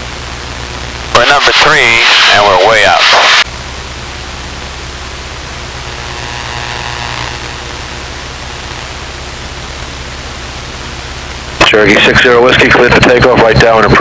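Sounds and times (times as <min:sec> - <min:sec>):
cockpit audio hiss: 0:00.0 - 0:14.0
airplane engine droning: 0:03.5 - 0:12.6.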